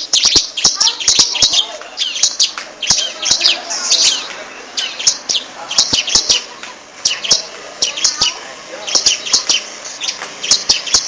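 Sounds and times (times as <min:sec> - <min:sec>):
small bird chirping and trilling: 0:00.0 - 0:11.0
sharp clicks: 0:01.7 - 0:03.1.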